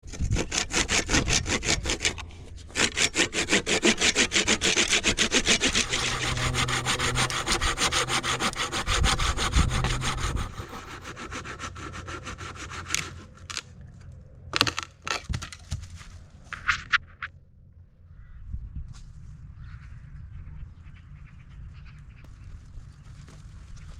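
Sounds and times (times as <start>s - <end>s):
hand saw cutting wood: 0.0s - 13.7s.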